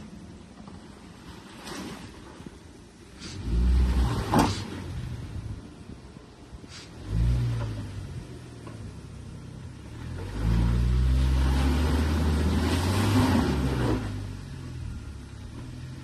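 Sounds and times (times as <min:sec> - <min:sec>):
car engine revving: 0:06.9 - 0:16.0.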